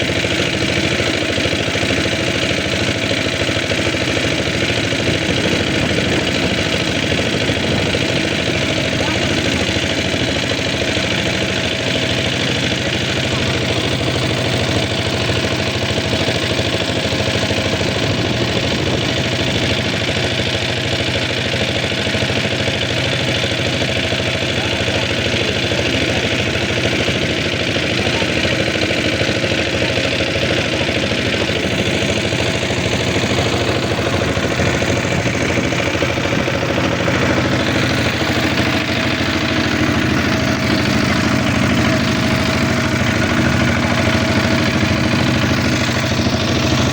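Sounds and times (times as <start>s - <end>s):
engine running steadily: 0.0s - 46.9s.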